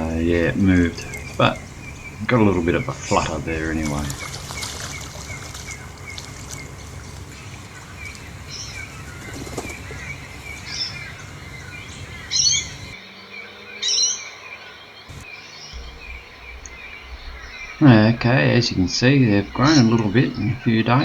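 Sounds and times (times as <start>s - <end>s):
birds chirping: 0.0s - 21.0s
low rumble: 15.8s - 21.0s.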